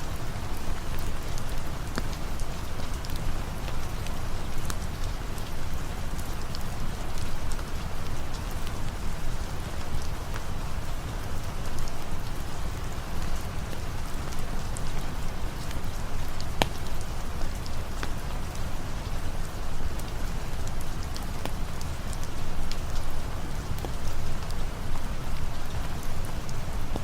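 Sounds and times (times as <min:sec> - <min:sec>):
steady rain falling: 0:00.0 - 0:27.0
sharp ticks and pops: 0:16.5 - 0:16.9.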